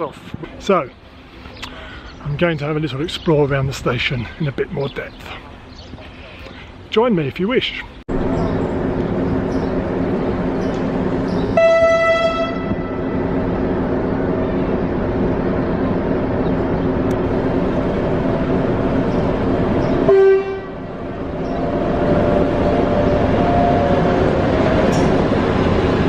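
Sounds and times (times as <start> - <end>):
train engine rumble: 0.0 - 26.0
train horn: 11.5 - 13.4, 20.0 - 21.0.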